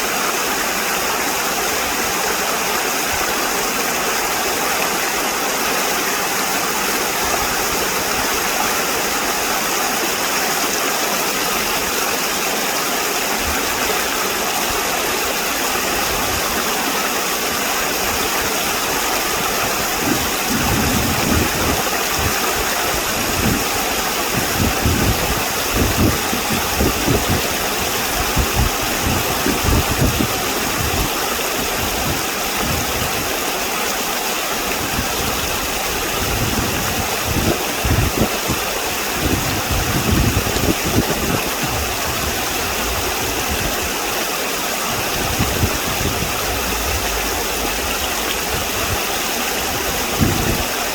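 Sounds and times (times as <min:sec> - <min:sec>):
stream water rushing: 0:00.0 - 0:50.9
low rumbling surges: 0:44.7 - 0:50.9.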